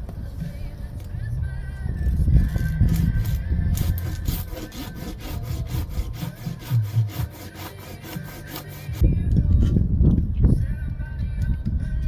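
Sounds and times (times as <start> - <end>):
hand saw cutting wood: 2.6 - 9.0.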